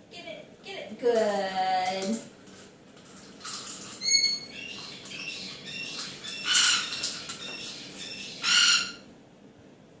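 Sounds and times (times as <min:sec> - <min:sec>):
parrot squawking: 0:04.0 - 0:09.1.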